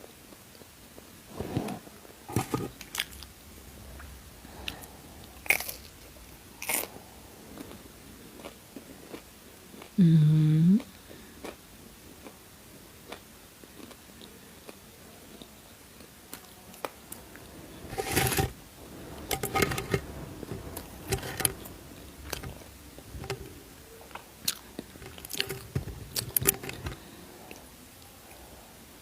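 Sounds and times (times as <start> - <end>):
person chewing crunchy snack: 5.4 - 5.9, 6.6 - 7.0, 7.6 - 10.0, 11.4 - 11.6, 24.4 - 27.0.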